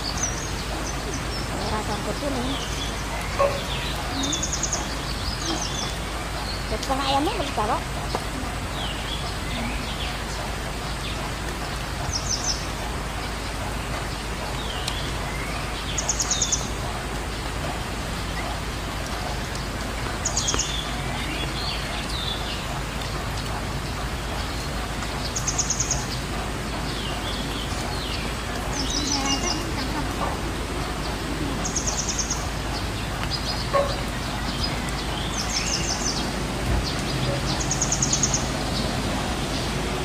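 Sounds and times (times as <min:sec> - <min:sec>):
songbird singing trills: 0:00.0 - 0:12.7, 0:24.5 - 0:38.9.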